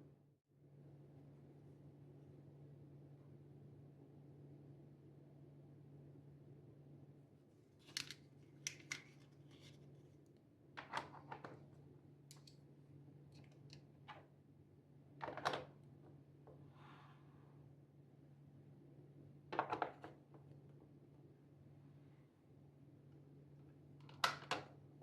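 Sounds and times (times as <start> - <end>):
clicks snips and rustles: 7.8 - 9.9.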